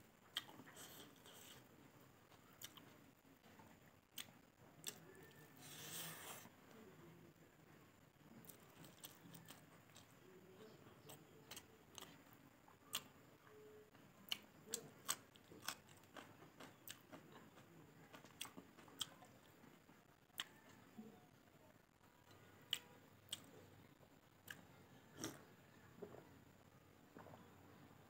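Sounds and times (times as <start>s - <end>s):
person chewing food: 0.3s - 6.5s, 8.4s - 13.2s, 14.2s - 20.9s, 24.3s - 26.2s.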